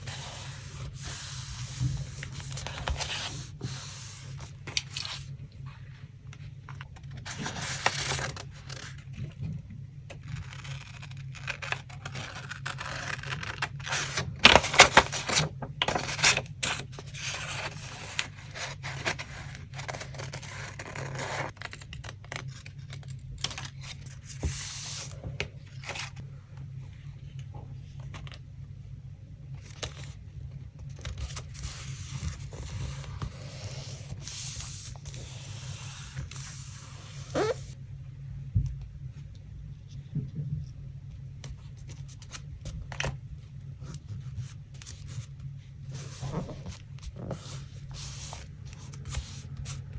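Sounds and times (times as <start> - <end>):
paper scraping: 0.0 - 5.3, 31.0 - 37.8, 45.9 - 49.8.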